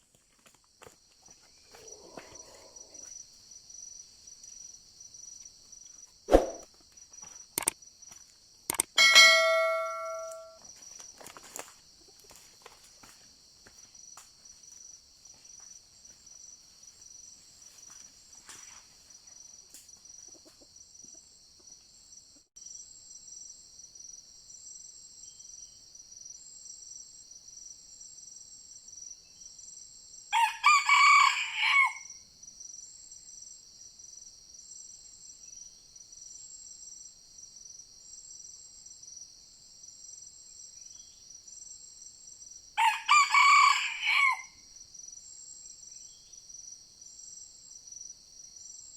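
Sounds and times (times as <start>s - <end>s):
rooster crowing: 9.0s - 10.5s, 30.3s - 32.2s, 42.8s - 44.6s.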